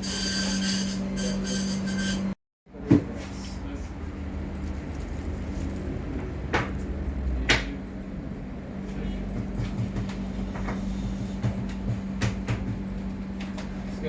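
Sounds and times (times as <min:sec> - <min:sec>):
knocks and clicks on engine: 0:09.2 - 0:13.7.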